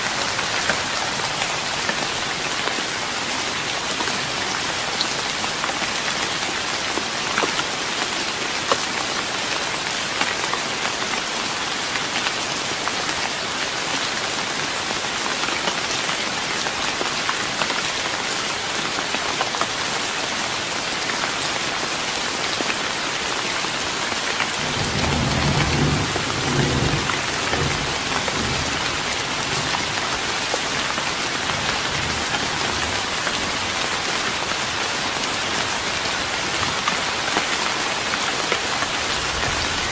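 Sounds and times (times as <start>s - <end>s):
rain pattering on a wooden deck: 0.0s - 39.9s
low roll of thunder: 24.6s - 28.8s.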